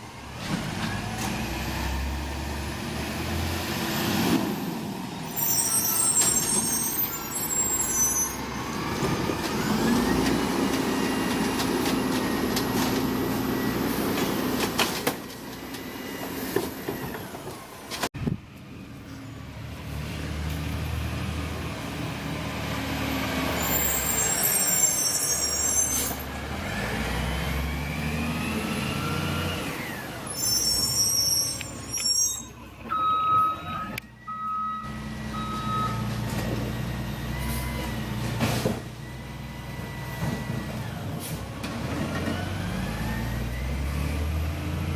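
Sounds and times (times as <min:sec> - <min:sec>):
diesel truck engine revving: 0:08.4 - 0:14.8, 0:19.4 - 0:25.0, 0:26.2 - 0:31.7, 0:34.8 - 0:44.9
reversing beeps: 0:31.9 - 0:36.1.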